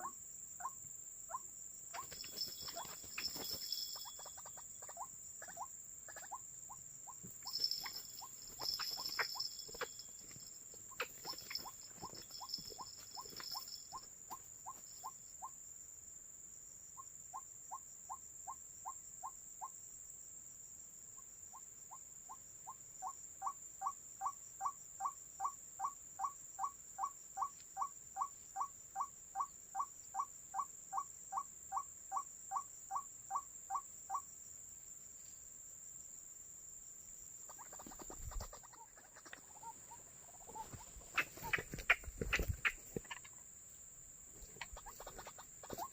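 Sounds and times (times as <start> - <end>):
waterhen calling: 37.5 - 43.3.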